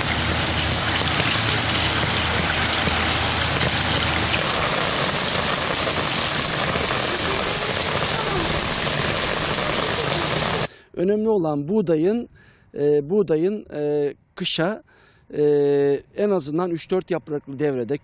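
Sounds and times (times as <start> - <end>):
low hum: 0.0 - 10.6
rain on cobblestones: 0.0 - 10.7
water pouring from drainpipe: 0.0 - 10.7.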